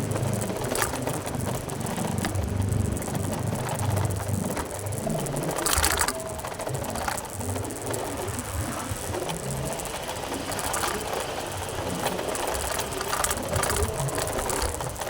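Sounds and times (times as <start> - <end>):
road noise: 0.0 - 15.0
rattling clatter: 9.0 - 15.0.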